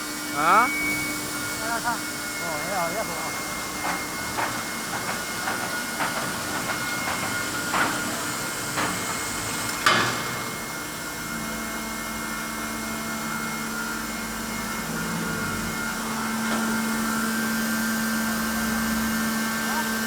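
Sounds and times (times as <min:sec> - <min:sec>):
machinery hum and whine: 0:00.0 - 0:20.0.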